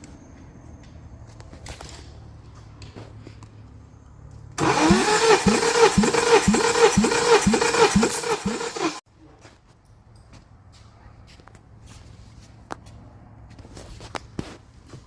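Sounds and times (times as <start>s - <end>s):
engine cranked by starter motor: 4.6s - 9.0s.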